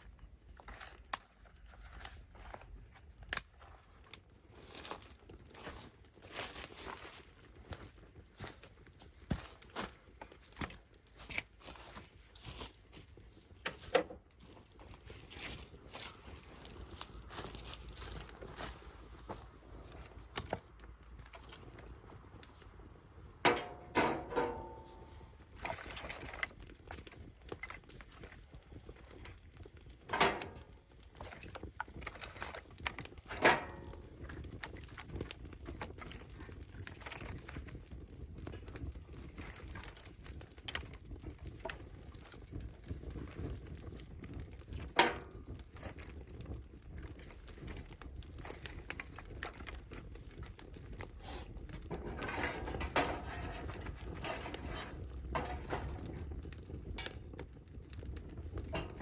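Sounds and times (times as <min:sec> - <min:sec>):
rustling: 0:48.4 - 0:57.0.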